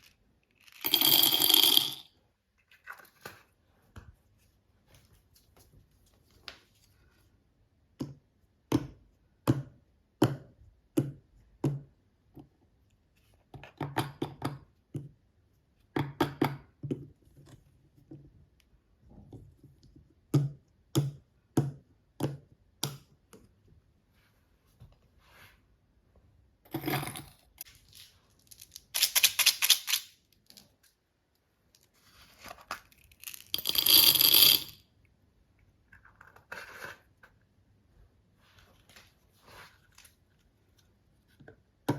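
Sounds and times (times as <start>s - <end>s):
toy pieces clicking and tapping: 28.5s - 30.2s.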